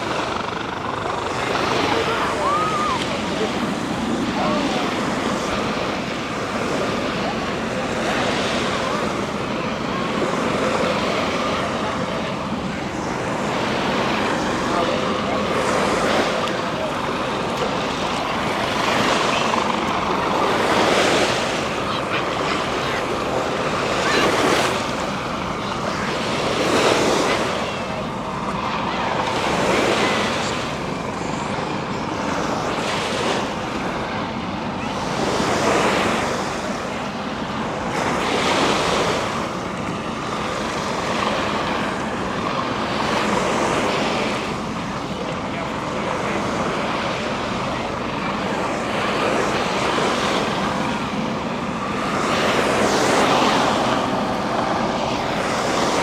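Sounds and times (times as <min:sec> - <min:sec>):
ocean surf breaking on beach: 0:00.0 - 0:56.0.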